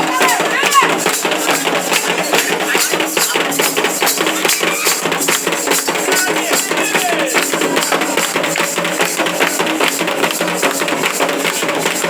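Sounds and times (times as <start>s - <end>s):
voices singing: 0.0s - 9.0s
percussion beating fast rhythm: 0.0s - 12.0s.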